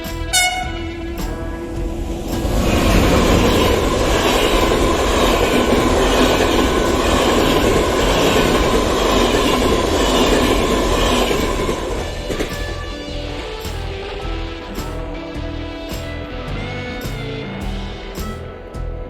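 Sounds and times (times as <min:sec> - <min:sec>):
train wheels rumbling on rails: 0:00.0 - 0:13.4.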